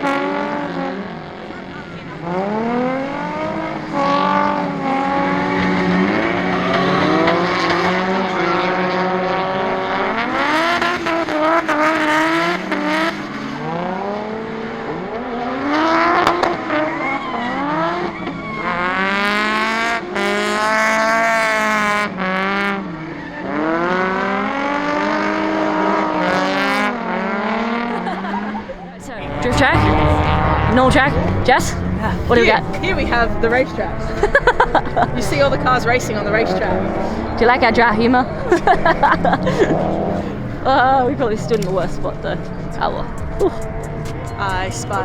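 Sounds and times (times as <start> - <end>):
car engines revving: 0.0 - 45.0.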